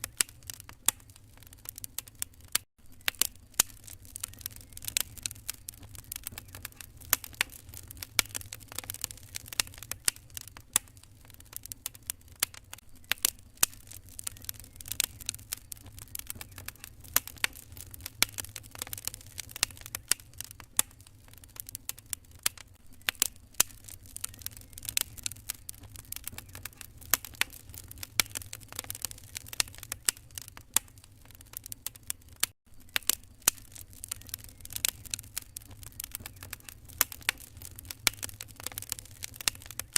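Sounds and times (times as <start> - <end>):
low fire rumble: 0.0 - 39.9
wood fire crackling: 0.0 - 39.9.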